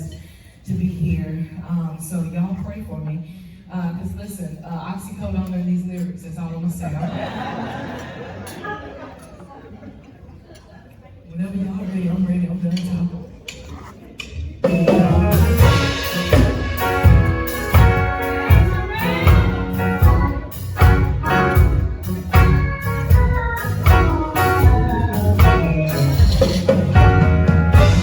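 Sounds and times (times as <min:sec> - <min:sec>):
band playing instrumental: 0:14.6 - 0:28.0.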